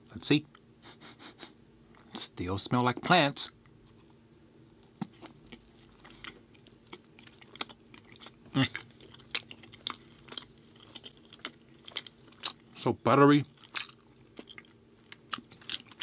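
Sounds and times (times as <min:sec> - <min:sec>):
chewing with soft crunches: 0:03.6 - 0:16.0.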